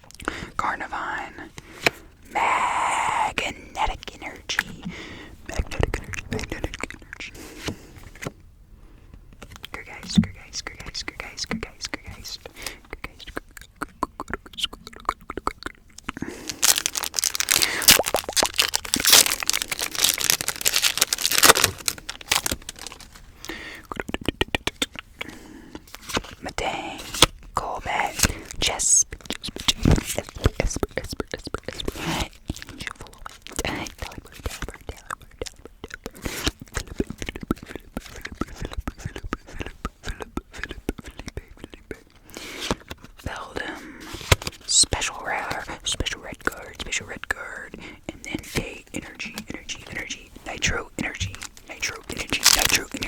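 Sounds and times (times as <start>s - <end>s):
packaging crinkling: 16.2s - 23.7s, 44.0s - 45.8s, 49.2s - 53.0s
cards sliding rustle: 25.8s - 27.4s, 28.0s - 28.6s, 42.2s - 44.7s.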